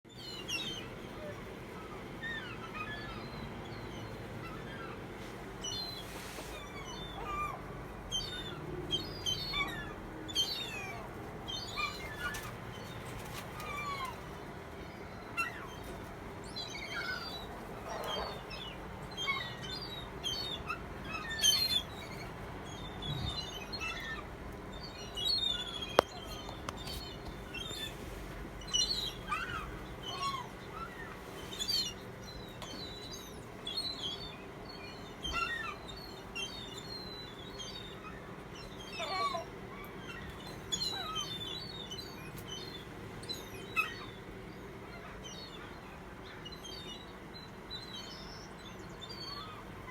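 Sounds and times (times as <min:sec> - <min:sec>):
birds chirping and twittering: 0:00.1 - 0:49.9.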